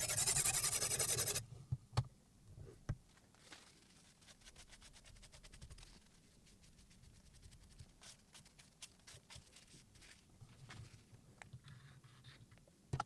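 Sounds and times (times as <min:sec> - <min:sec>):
sharpening stone scraping knife edge: 0:00.0 - 0:01.4.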